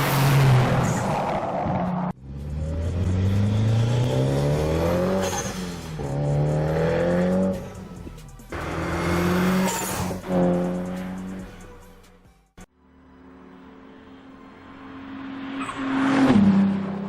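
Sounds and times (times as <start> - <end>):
car engine revving hard: 2.5 - 7.6, 8.5 - 11.4.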